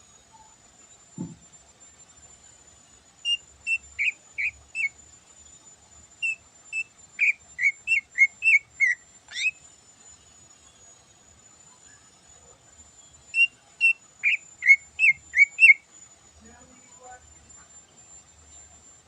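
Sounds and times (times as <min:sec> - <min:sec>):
bird singing whistled notes: 0:03.2 - 0:05.0, 0:06.2 - 0:09.6, 0:13.3 - 0:15.9.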